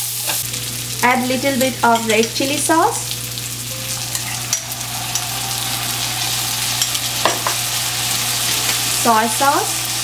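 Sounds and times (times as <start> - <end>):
vegetables sizzling in hot oil: 0.0 - 10.0
spoon scraping a wok: 6.6 - 9.0.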